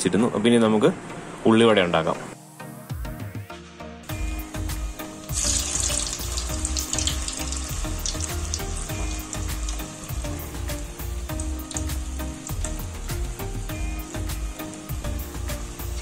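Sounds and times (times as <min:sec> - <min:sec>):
batter frying in hot oil: 0:04.1 - 0:16.0.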